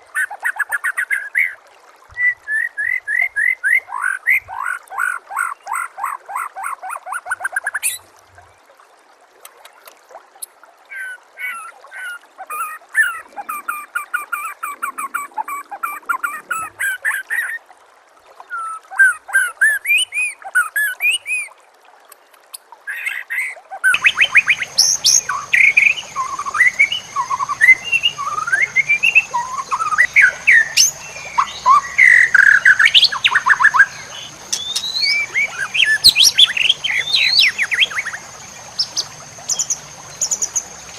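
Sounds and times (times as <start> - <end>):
whistled gliding bird phrases: 10.9 - 17.6, 22.9 - 40.7.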